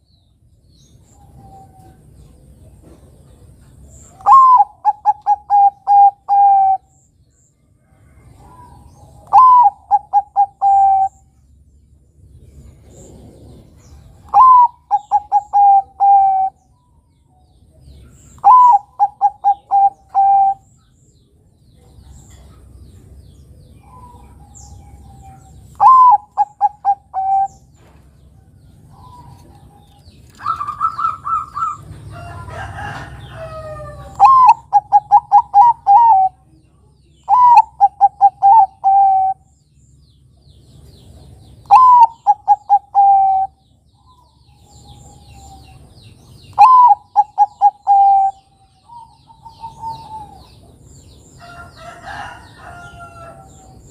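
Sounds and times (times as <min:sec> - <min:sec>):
dove cooing: 0:04.1 - 0:06.9, 0:08.4 - 0:11.3, 0:12.9 - 0:16.6, 0:18.4 - 0:20.7, 0:23.8 - 0:27.7, 0:28.9 - 0:31.9, 0:32.5 - 0:36.5, 0:37.2 - 0:39.5, 0:41.6 - 0:45.8, 0:46.5 - 0:50.7.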